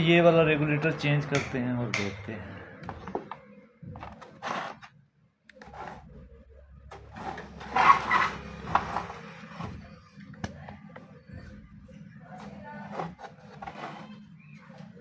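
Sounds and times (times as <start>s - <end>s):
tools scraping circuit board: 7.0s - 9.7s.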